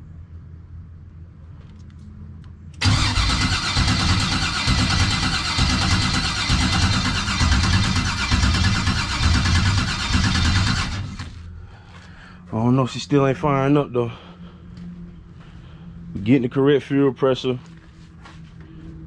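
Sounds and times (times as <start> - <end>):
starter motor cranking engine: 2.8 - 11.4.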